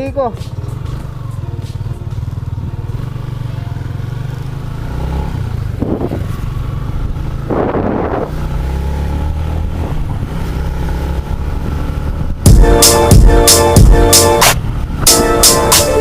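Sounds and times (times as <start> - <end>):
motorcycle engine rumbling: 0.0 - 16.0
loud music with strong beat: 12.5 - 16.0.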